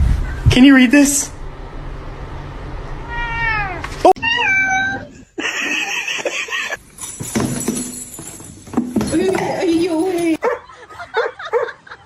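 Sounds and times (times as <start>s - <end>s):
cat meowing: 3.0s - 5.1s.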